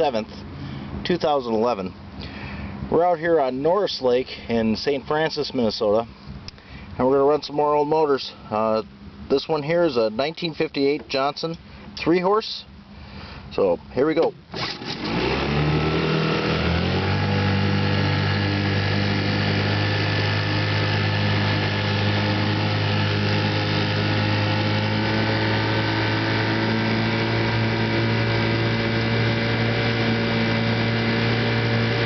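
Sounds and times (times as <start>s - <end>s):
outboard motor running: 14.5s - 32.0s.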